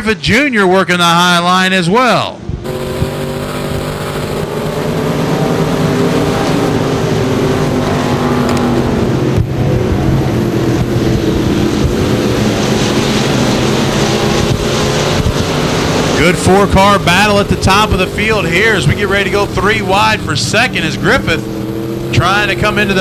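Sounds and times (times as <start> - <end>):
racing car engines droning: 1.0 - 23.0.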